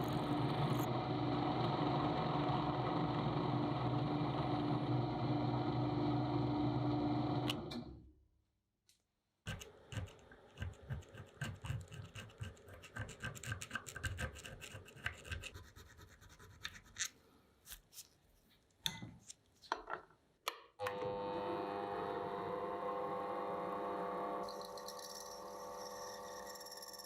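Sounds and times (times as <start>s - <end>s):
scratching and scraping strokes: 10.9s - 18.6s.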